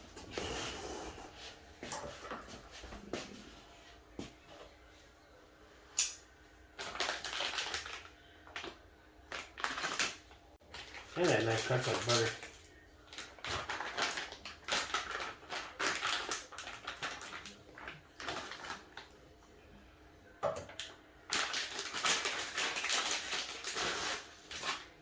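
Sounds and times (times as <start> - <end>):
packaging crackling and rustling: 6.8 - 19.1, 21.3 - 25.0.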